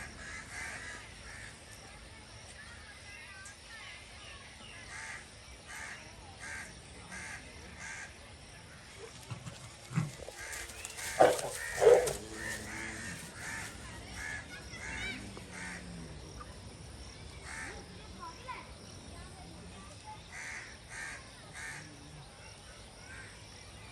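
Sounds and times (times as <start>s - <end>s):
crows cawing: 10.3s - 15.8s, 17.4s - 17.7s.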